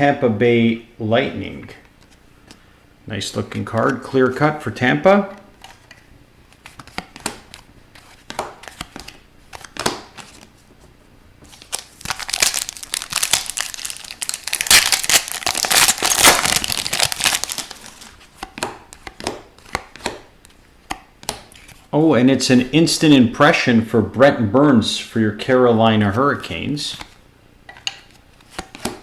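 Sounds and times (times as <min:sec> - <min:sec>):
wrapper crinkling and tearing: 0:11.5 - 0:18.2
trading cards clicking: 0:11.5 - 0:19.1.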